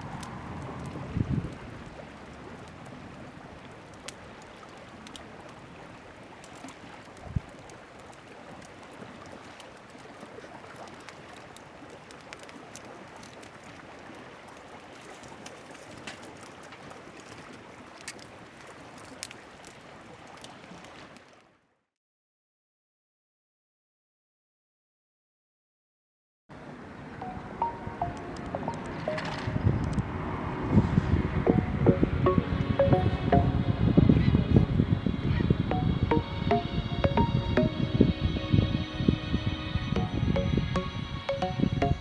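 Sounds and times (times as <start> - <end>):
lake water lapping at shore: 0.0 - 21.6.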